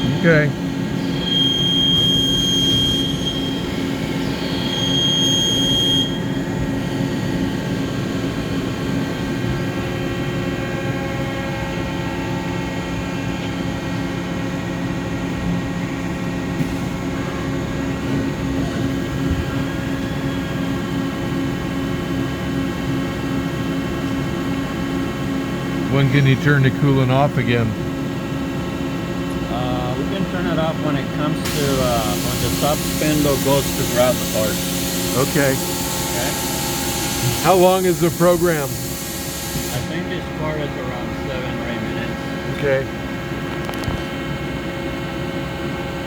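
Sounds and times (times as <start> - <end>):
lathe machine hum and whine: 0.0 - 46.0
short high-pitched squeals: 1.0 - 6.4.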